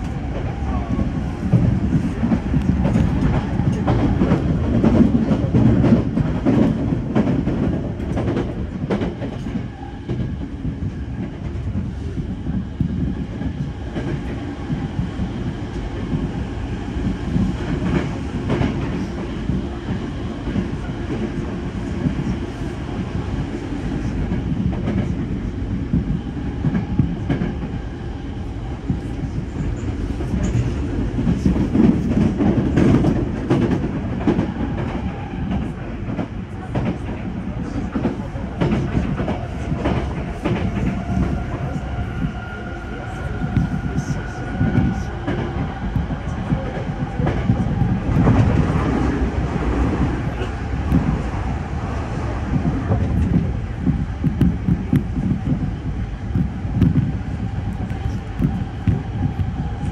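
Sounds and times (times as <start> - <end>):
rail joint clicks: 0.0 - 16.4, 28.8 - 59.9
train wheels rumbling on rail: 0.0 - 59.9.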